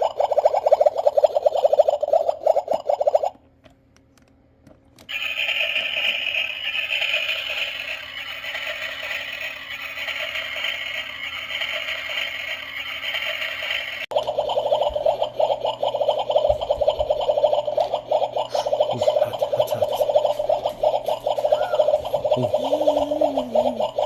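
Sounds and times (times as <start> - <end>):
toy electronic sizzling hiss: 5.1 - 14.0.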